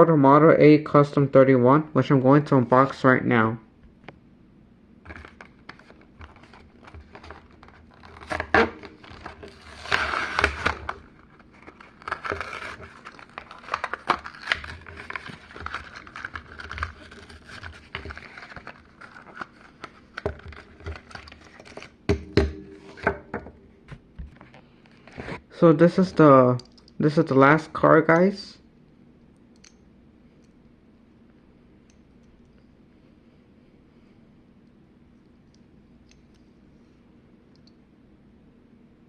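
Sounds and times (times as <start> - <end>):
plastic and cardboard crinkling: 5.1 - 22.0.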